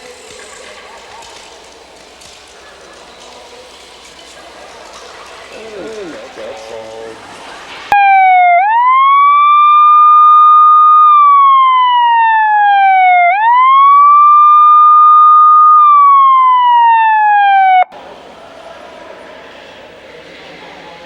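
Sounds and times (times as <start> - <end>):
wailing siren: 7.9 - 18.0.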